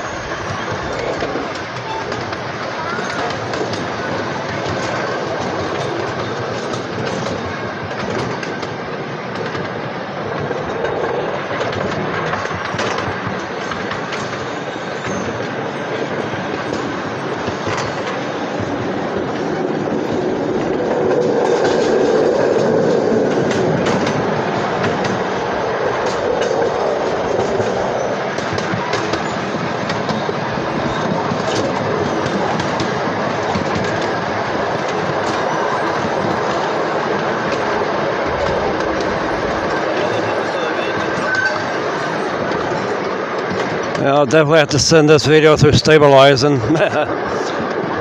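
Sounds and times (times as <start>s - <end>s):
train wheels rumbling: 0.0s - 48.0s
clicks over rail joints: 0.5s - 44.1s.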